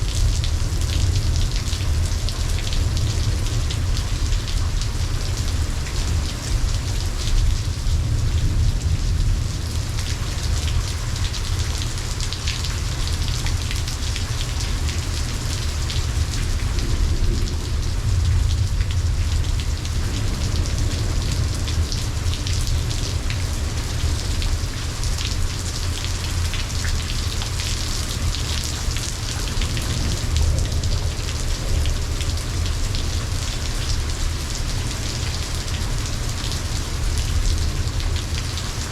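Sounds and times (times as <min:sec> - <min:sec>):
rain pattering: 0:00.0 - 0:38.9
low rumble: 0:16.1 - 0:23.7.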